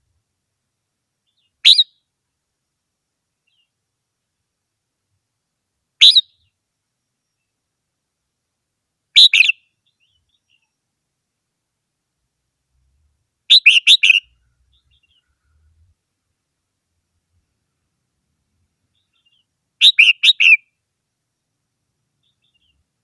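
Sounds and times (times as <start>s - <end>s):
bird singing: 1.2s - 2.0s, 6.0s - 6.6s, 9.2s - 10.8s, 13.5s - 15.5s, 18.9s - 20.7s, 22.2s - 22.8s.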